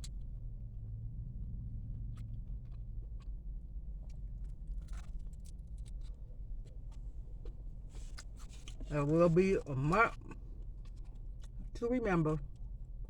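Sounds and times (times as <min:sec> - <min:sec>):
low steady hum: 0:00.0 - 0:13.0
crunch: 0:02.0 - 0:08.9, 0:10.1 - 0:11.7.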